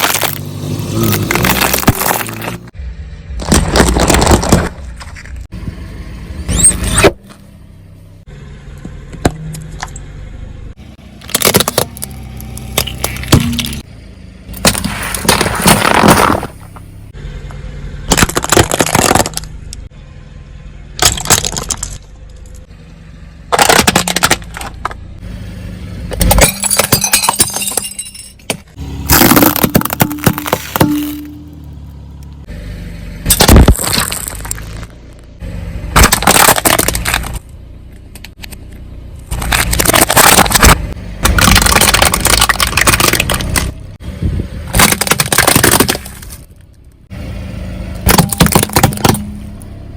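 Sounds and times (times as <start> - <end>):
objects crunching under car tyres: 0.0 - 5.5, 11.2 - 13.9, 14.5 - 19.9, 21.0 - 22.7, 23.5 - 25.2, 26.1 - 32.5, 33.2 - 47.1, 47.9 - 49.9.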